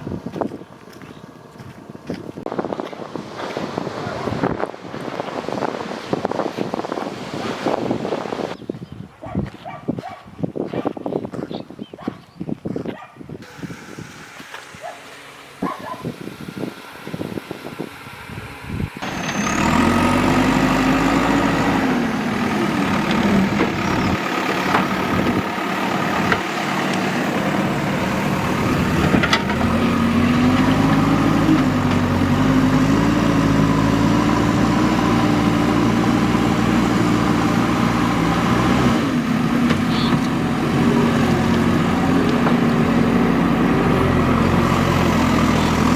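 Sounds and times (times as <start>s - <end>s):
heavy diesel engine revving: 13.4s - 45.9s.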